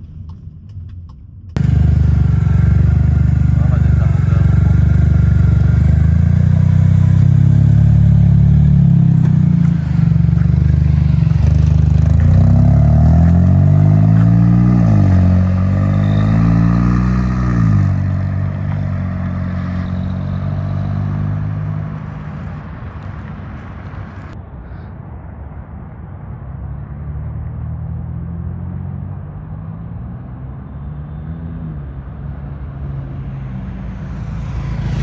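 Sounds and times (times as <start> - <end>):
car engine revving: 1.6 - 22.8.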